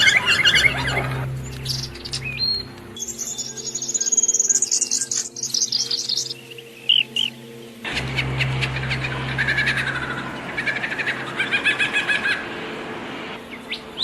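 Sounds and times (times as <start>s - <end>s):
songbirds singing: 0.0s - 14.0s
low hum of held tones: 5.8s - 14.0s
high-pitched bird trill: 7.9s - 12.4s.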